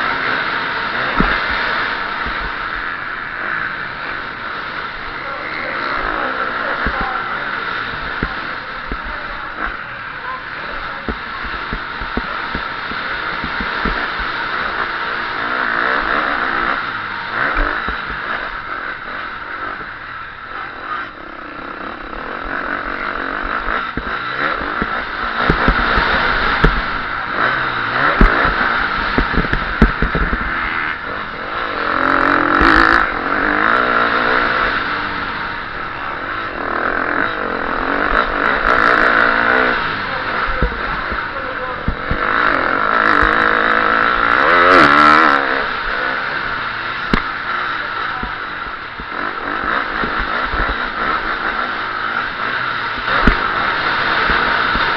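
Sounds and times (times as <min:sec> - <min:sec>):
motocross engine revving: 0:00.0 - 0:54.9
low knocks: 0:29.2 - 0:30.5.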